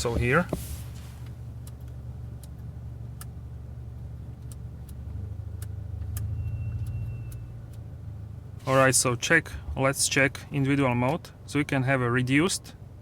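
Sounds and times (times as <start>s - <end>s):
car engine idling: 0.0s - 2.1s.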